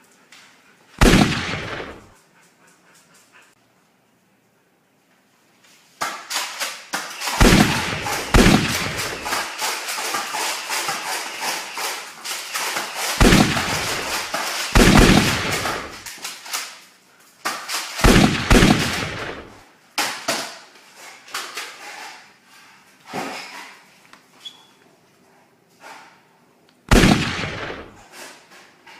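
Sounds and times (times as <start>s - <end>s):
rapid gunfire cracks: 1.0s - 2.2s, 6.3s - 16.6s, 17.7s - 19.6s, 26.9s - 28.1s.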